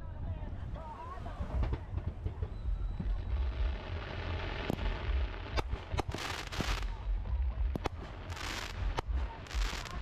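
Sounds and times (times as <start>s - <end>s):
fireworks bangs: 1.5s - 10.0s
hissing crackling firework burst: 3.2s - 7.0s, 7.7s - 10.0s.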